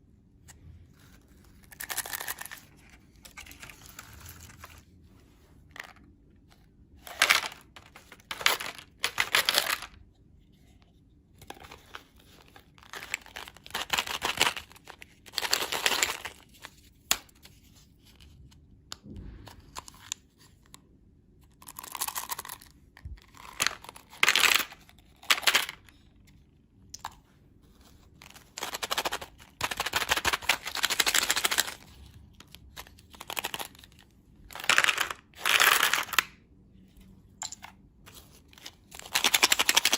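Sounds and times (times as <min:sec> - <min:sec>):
candy packaging crinkling and tearing: 0:01.3 - 0:04.8, 0:07.0 - 0:10.0, 0:11.6 - 0:16.7, 0:21.4 - 0:25.9, 0:27.8 - 0:36.4, 0:38.1 - 0:39.9.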